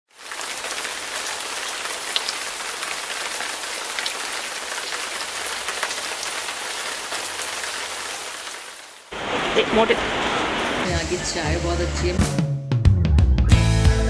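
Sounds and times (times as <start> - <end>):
rain falling on leaves: 0.1 - 11.3.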